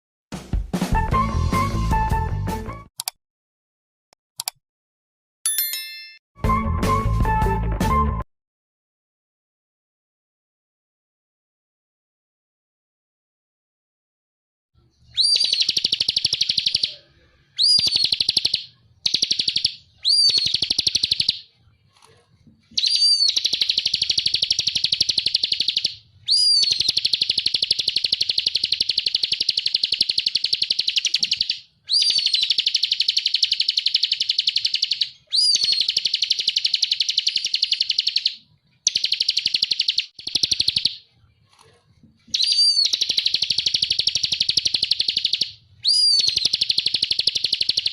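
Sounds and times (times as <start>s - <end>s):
bird singing rattling trill: 15.1s - 17.0s, 17.6s - 21.5s, 22.8s - 41.1s, 42.3s - 47.9s.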